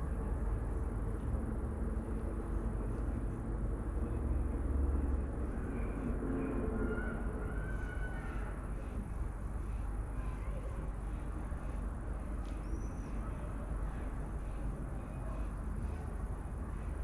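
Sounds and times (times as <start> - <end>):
low outdoor rumble: 0.0 - 17.0
faint bird chirps: 12.5 - 13.4.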